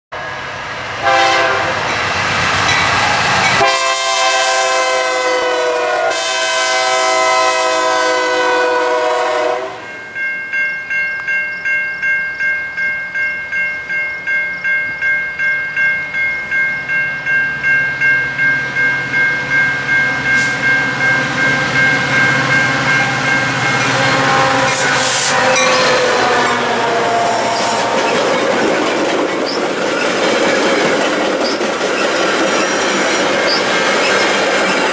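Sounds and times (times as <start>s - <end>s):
train horn: 0.2s - 1.9s, 2.9s - 9.9s, 20.4s - 29.0s
crossing bell ringing: 0.2s - 3.9s, 9.0s - 34.9s
train wheels on rails: 0.2s - 5.0s, 16.0s - 34.9s
locomotive air horn blasts: 1.0s - 1.9s, 3.1s - 9.9s, 22.2s - 28.7s.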